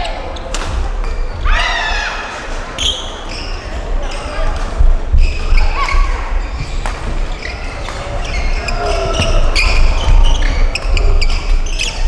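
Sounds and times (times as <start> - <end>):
low rumble of large hall: 0.0 - 12.0
racket hitting shuttlecock: 0.4 - 3.0, 4.5 - 12.0
shoes squeaking on court floor: 2.8 - 12.0.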